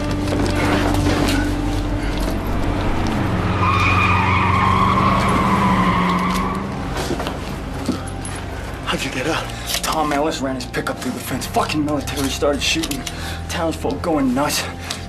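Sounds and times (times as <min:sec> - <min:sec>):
car engine running: 0:00.0 - 0:07.8
tyres squealing: 0:00.0 - 0:08.2.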